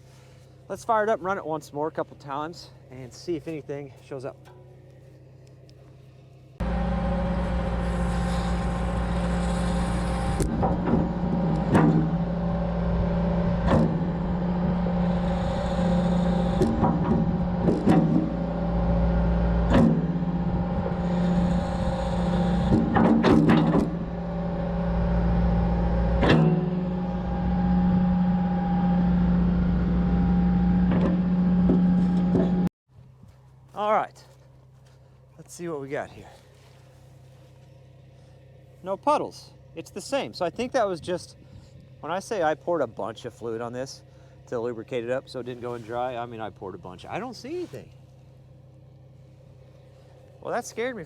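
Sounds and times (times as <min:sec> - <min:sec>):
excavator running: 0:02.3 - 0:32.7.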